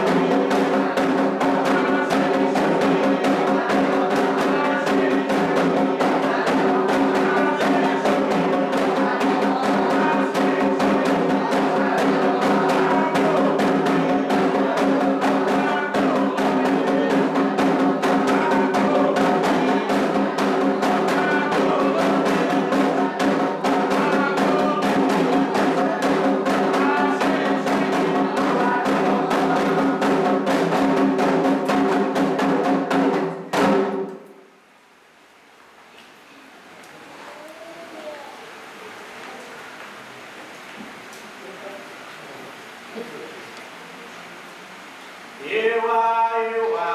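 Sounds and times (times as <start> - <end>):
fast hand drumming: 0.0 - 34.0.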